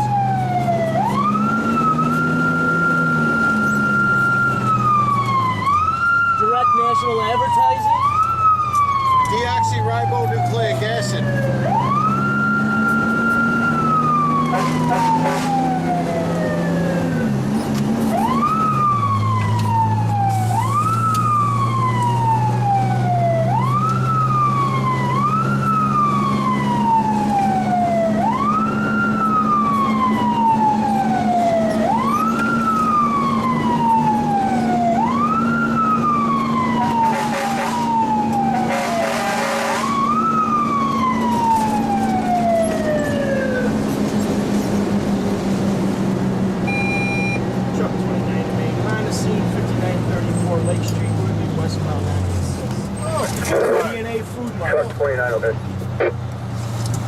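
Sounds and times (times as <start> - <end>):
mechanical fire truck siren: 0.0 - 45.1, 46.5 - 47.6
truck engine drone: 0.0 - 57.0.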